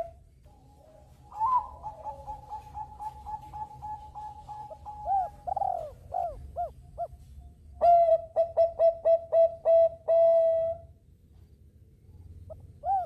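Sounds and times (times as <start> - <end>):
dove cooing: 0.0 - 7.2, 7.8 - 10.9, 12.5 - 13.0.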